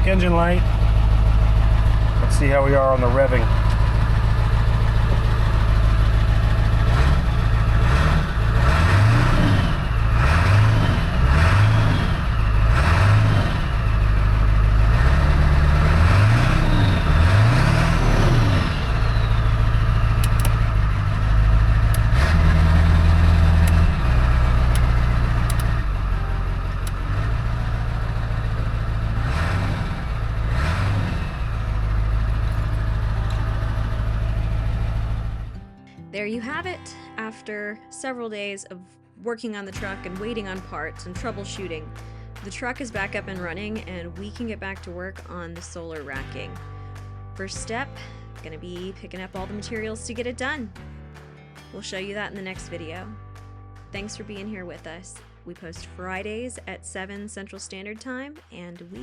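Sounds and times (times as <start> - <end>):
diesel engine idling and revving: 0.0 - 35.7, 39.8 - 50.8.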